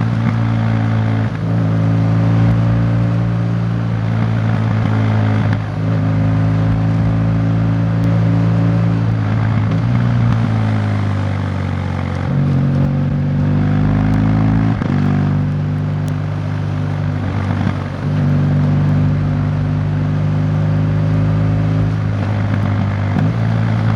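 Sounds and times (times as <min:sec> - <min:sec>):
vehicle engine running: 0:00.0 - 0:23.9.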